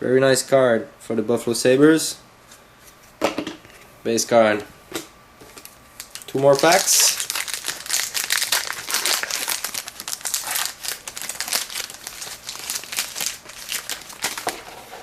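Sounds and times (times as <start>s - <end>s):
wrapper tearing and crinkling: 5.6s - 15.0s.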